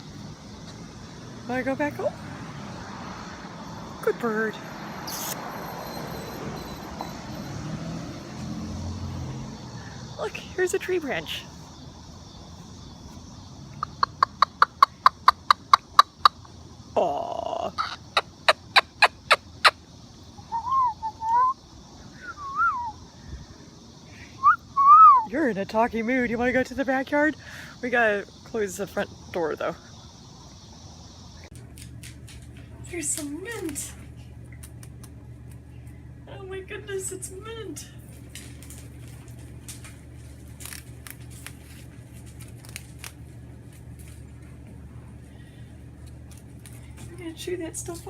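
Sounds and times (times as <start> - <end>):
steady low hum: 9.0 - 48.0
cockatoo whistling: 20.4 - 21.6, 22.2 - 23.0, 24.4 - 25.3
parrot tearing leaves: 38.2 - 44.4, 46.0 - 47.0.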